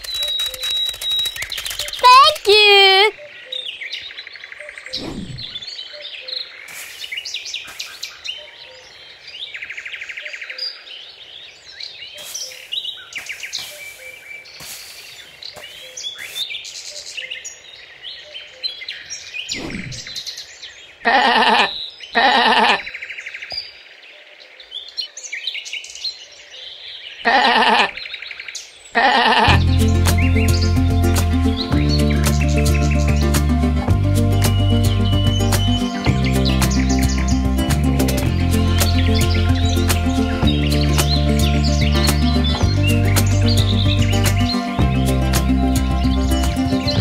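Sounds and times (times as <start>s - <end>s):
small birds chirping: 0.0s - 47.0s
sheep bleating: 21.1s - 22.8s, 27.3s - 28.0s.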